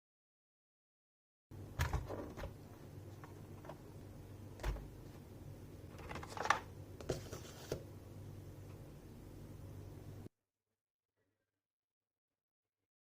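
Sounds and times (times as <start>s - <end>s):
steady low hum: 1.5s - 10.3s.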